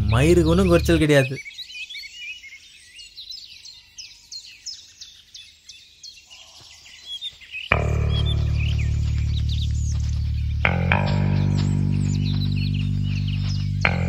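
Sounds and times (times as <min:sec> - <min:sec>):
music with low bass: 0:00.0 - 0:01.0, 0:07.7 - 0:14.0
birds chirping and whistling: 0:00.0 - 0:14.0.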